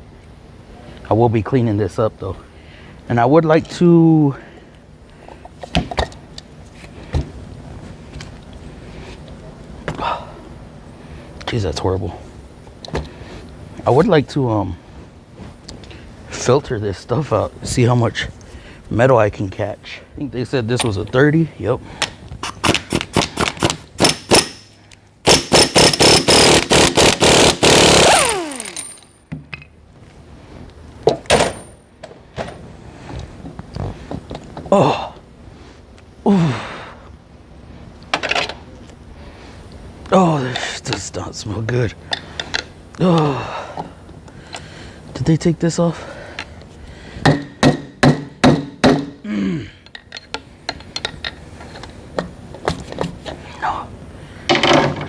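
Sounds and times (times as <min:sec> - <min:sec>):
impact wrench hammering: 0:22.4 - 0:24.7, 0:25.3 - 0:29.1, 0:47.2 - 0:49.2.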